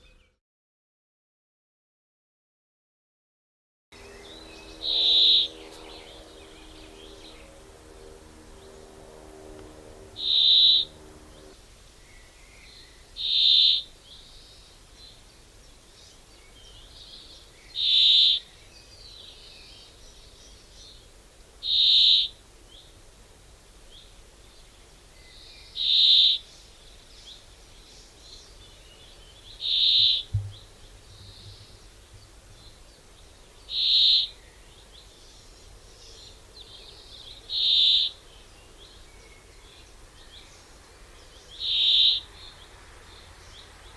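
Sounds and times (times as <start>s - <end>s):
faint background noise: 4.0s - 43.9s
low thud: 30.3s - 31.7s.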